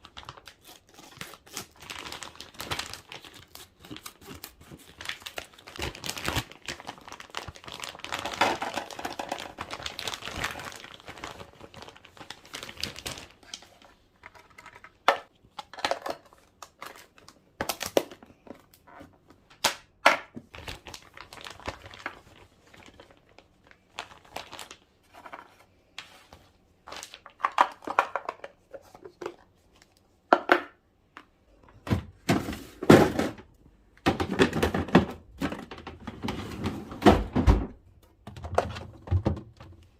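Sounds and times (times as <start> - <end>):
plastic packaging crinkling: 0.0 - 15.0, 20.5 - 25.6
containers clicking and knocking: 14.3 - 16.6, 27.4 - 29.5.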